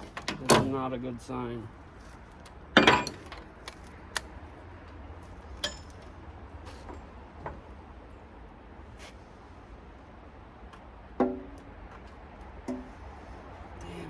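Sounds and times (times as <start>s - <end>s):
metal tools clinking and knocking: 2.8s - 3.5s, 5.6s - 6.1s.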